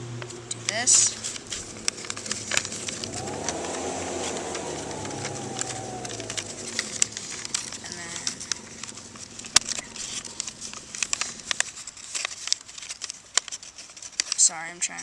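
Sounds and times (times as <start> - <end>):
vehicle passing by: 0.0 - 12.0
paper crackling and clicking: 0.2 - 15.0.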